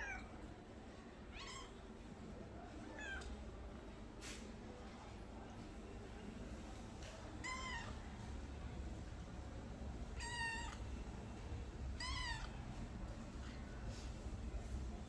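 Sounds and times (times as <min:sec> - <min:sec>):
cat meowing: 0:10.2 - 0:10.8, 0:12.0 - 0:12.6.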